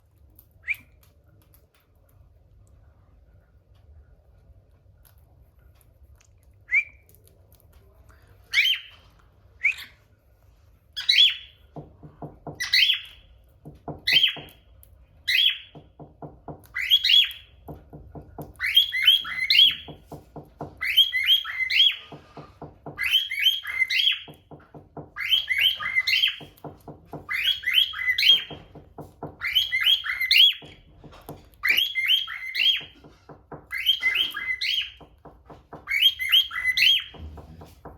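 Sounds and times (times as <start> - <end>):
cockatiel whistling and chirping: 6.7 - 7.1, 8.5 - 9.0, 9.6 - 10.0, 11.0 - 11.6, 12.6 - 13.2, 14.0 - 14.6, 15.2 - 15.7, 16.7 - 17.5, 18.5 - 20.0, 20.7 - 22.2, 22.9 - 24.4, 25.1 - 26.6, 27.2 - 28.7, 29.3 - 30.8, 31.6 - 33.0, 33.7 - 35.1, 35.8 - 37.2.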